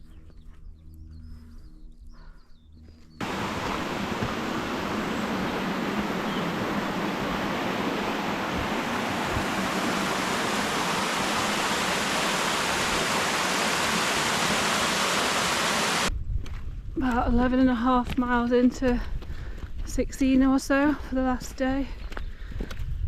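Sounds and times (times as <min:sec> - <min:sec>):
rush of flowing water: 0:03.2 - 0:16.1.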